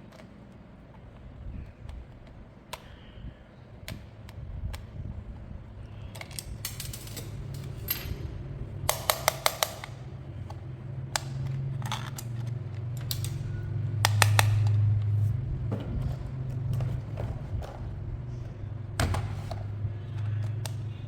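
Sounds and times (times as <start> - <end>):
plastic parts clicking and snapping: 0.0 - 3.2, 5.9 - 8.1, 8.8 - 15.2, 19.0 - 21.0.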